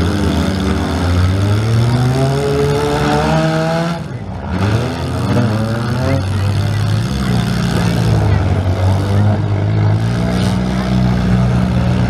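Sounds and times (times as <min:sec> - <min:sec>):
car engines running hard: 0:00.0 - 0:12.0.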